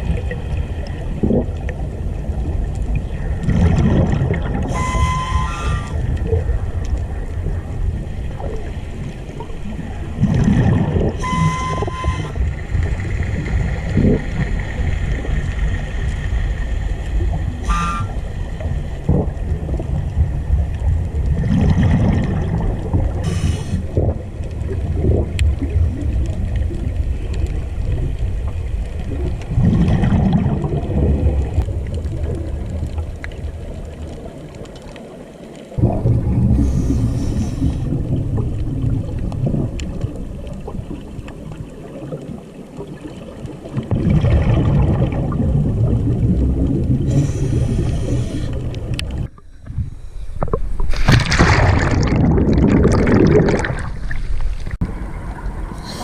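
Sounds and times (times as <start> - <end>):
exhaled bubbles gurgling: 0.0 - 56.0
hissing inhalations: 36.6 - 37.9, 47.1 - 48.7, 55.8 - 56.0.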